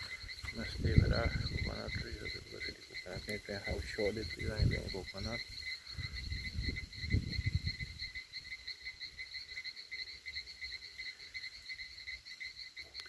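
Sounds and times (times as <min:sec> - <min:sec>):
low rumbling thumps: 0:00.5 - 0:02.4.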